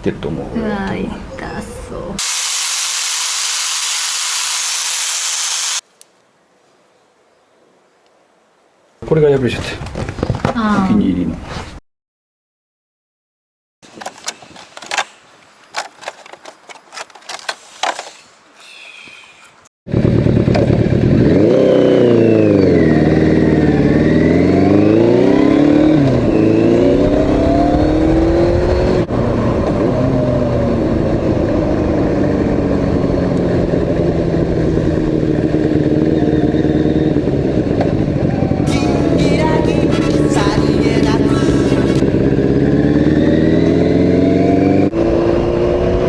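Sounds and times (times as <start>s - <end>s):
motorcycle engine revving: 19.9s - 46.0s.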